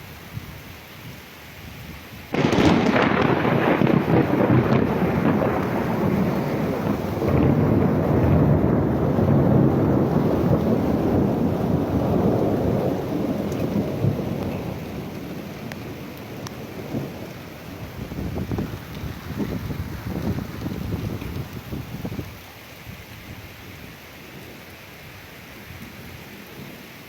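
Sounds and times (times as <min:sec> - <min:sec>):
steady rain: 0:00.0 - 0:27.0
thunder crack and rumble: 0:02.3 - 0:22.3.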